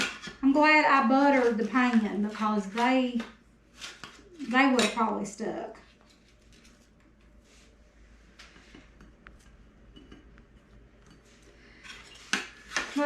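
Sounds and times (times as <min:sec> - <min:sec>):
spatula scraping baking pan: 0:00.0 - 0:03.2, 0:11.8 - 0:13.0.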